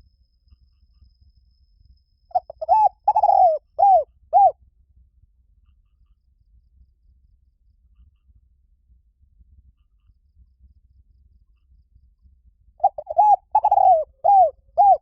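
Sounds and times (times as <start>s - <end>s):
dove cooing: 2.3s - 4.6s, 12.8s - 15.0s.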